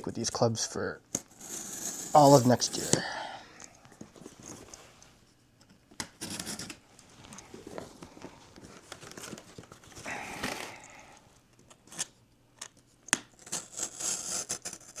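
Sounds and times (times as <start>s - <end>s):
light rustling and handling: 3.6s - 13.0s.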